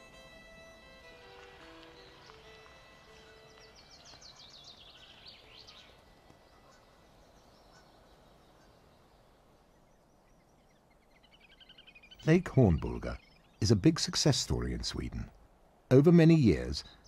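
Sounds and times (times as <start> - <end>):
faint short bird calls: 3.0 - 12.3.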